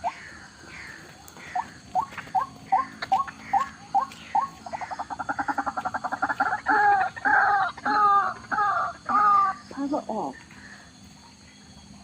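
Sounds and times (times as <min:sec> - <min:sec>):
waterhen calling: 0:00.0 - 0:10.8.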